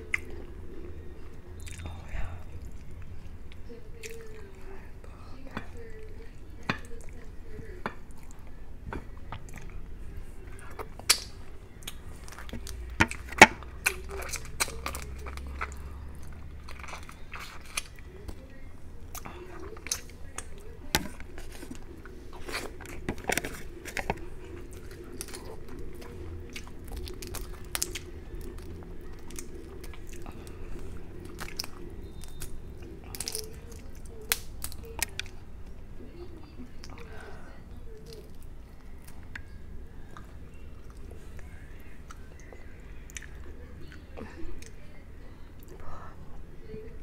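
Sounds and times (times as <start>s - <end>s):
chewing and crunching: 0.0s - 46.0s
shells cracking: 19.2s - 35.4s.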